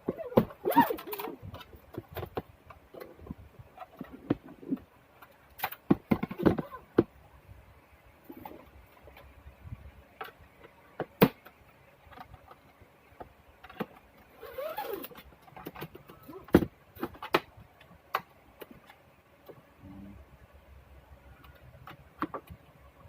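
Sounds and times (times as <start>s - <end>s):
plastic squeak: 0.1s - 1.7s, 14.3s - 16.6s.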